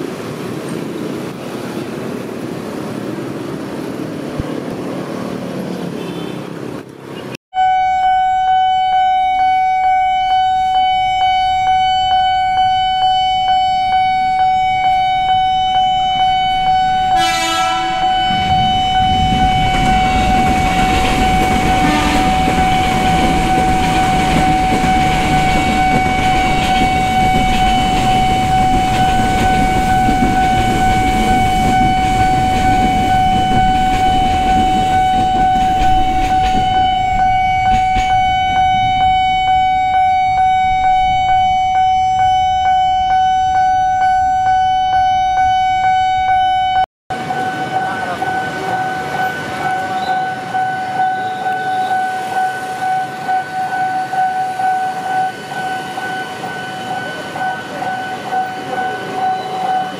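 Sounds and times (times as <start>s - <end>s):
level crossing bell ringing: 7.6s - 59.9s
train wheels rumbling on rail: 14.2s - 42.3s
train horn blast: 16.5s - 33.6s.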